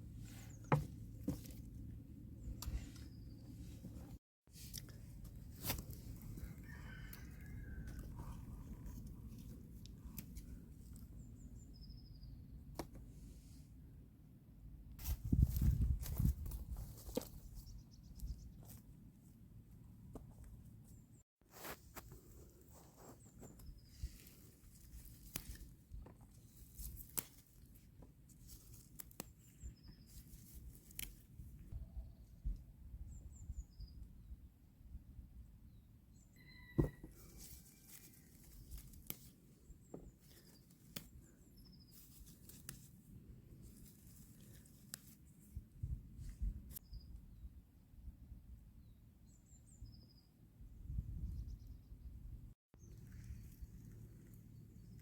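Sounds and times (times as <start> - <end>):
faint high bird chirps: 11.1 - 12.6, 29.4 - 30.3, 31.9 - 34.4, 35.6 - 38.8, 46.8 - 47.6, 48.8 - 52.1
distant wavering bird call: 36.2 - 37.8.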